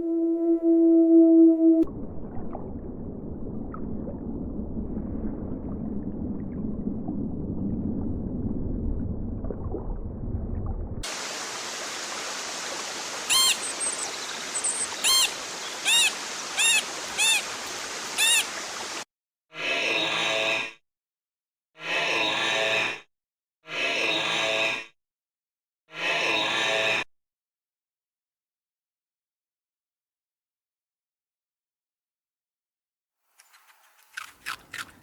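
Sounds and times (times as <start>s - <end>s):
held musical tone: 0.0s - 1.9s
arched animal calls: 13.3s - 17.6s, 18.2s - 18.6s.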